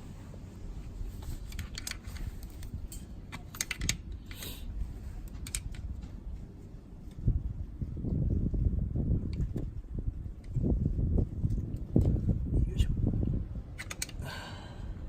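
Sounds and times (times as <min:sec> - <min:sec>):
low background rumble: 0:00.0 - 0:15.0
hand tool clicking and scraping: 0:01.2 - 0:05.9, 0:13.8 - 0:14.2.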